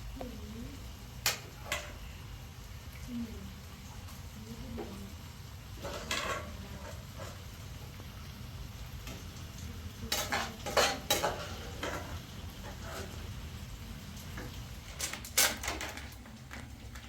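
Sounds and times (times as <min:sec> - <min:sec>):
utensil stirring in metal pot: 0:05.7 - 0:08.0, 0:09.0 - 0:17.0.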